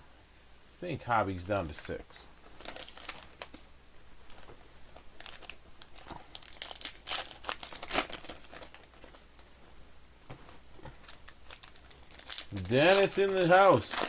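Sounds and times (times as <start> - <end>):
shrink wrap crinkling and tearing: 2.4 - 3.6, 4.3 - 9.2, 10.9 - 14.0.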